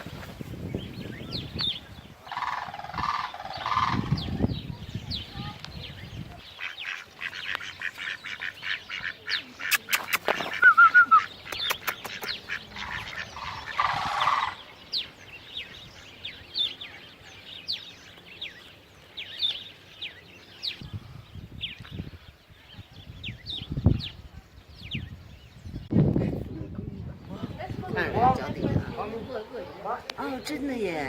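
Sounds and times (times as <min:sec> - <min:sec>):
birds chirping: 0:00.0 - 0:31.0
bird warbling call: 0:01.1 - 0:04.6, 0:06.5 - 0:17.9
loud sharp clicks: 0:11.5 - 0:12.4.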